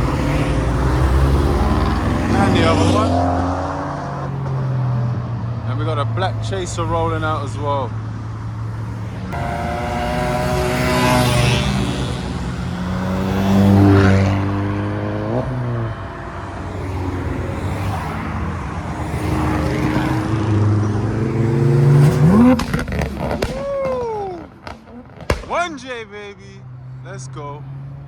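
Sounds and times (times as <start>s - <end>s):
engine revving sharply: 0.0s - 4.7s, 8.9s - 15.9s, 16.8s - 24.0s
cars driving past: 0.0s - 28.0s.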